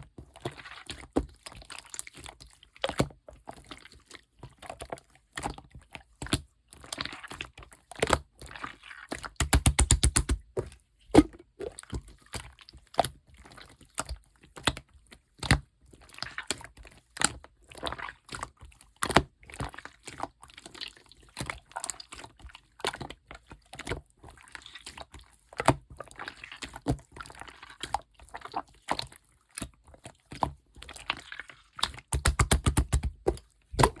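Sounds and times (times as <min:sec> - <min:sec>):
slime squelching by hand: 0:00.2 - 0:34.0
rapid slime clicking: 0:09.4 - 0:10.4, 0:32.1 - 0:34.0.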